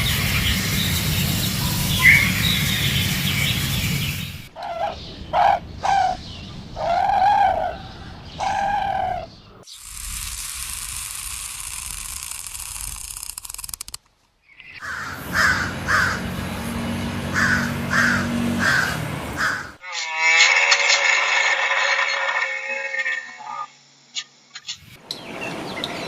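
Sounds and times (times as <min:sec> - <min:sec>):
steady hiss: 0:00.0 - 0:04.5, 0:09.7 - 0:13.4
drawn-out animal calls: 0:14.8 - 0:19.8.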